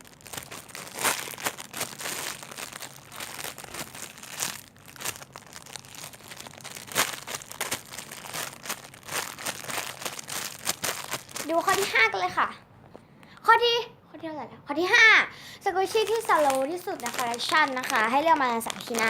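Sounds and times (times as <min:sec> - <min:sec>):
squishy toys crinkling: 0:00.0 - 0:12.1, 0:15.8 - 0:19.0.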